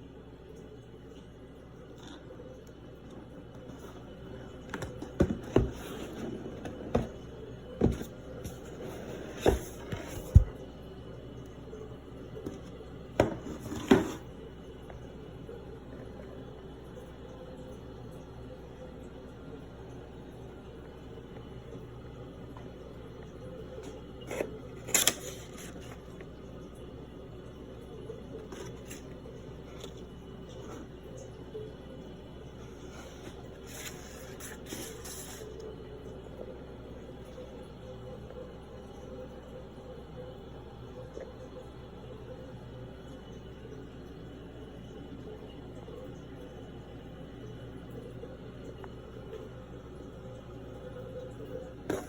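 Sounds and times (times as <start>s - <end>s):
low background hum: 0.0s - 52.0s
packaging handling noises: 24.2s - 26.1s, 32.9s - 35.6s.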